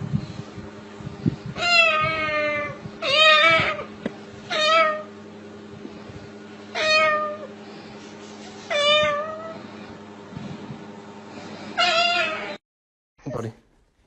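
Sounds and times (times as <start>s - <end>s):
cat meowing: 1.6s - 3.9s, 4.5s - 5.1s, 6.7s - 7.5s, 8.7s - 9.6s, 11.8s - 12.6s.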